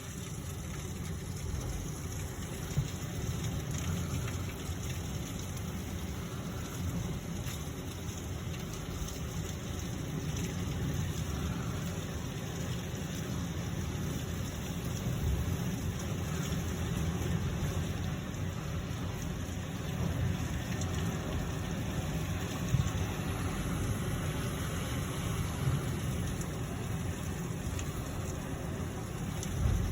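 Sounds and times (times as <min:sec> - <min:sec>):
heavy rain pouring: 0:00.0 - 0:29.9
low rumble: 0:19.4 - 0:29.9.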